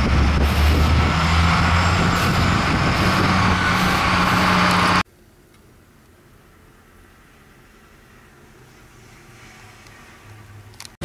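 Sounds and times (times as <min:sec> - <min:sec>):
loud rushing noise: 0:00.0 - 0:05.0.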